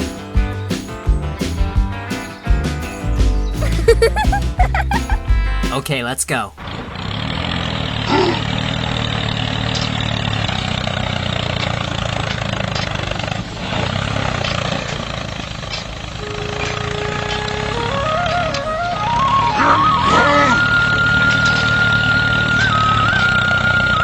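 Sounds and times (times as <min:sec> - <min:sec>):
mini tractor motor running: 0:06.6 - 0:24.0.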